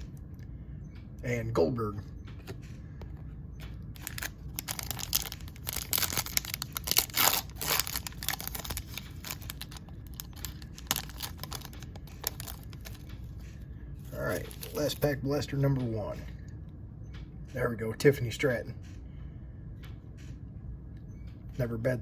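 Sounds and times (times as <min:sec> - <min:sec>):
plastic wrapper tearing and crinkling: 0:04.0 - 0:13.1, 0:14.1 - 0:15.0.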